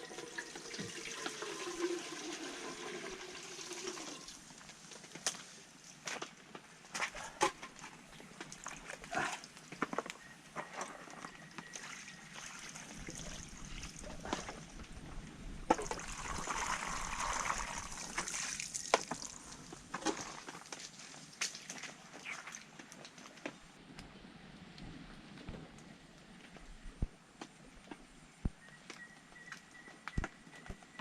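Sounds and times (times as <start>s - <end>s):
water sloshing and trickling: 7.2s - 9.9s, 10.6s - 15.0s, 15.7s - 23.6s
rush of water: 15.9s - 23.3s.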